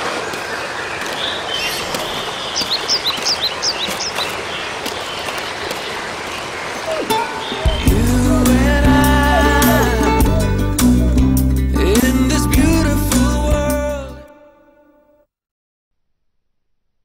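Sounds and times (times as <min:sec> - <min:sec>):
small bird chirping: 0:01.0 - 0:07.9.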